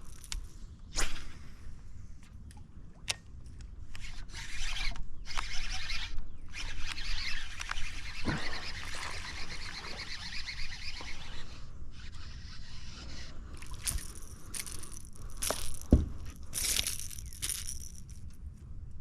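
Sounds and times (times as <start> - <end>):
fishing reel whirring: 4.0 - 18.1.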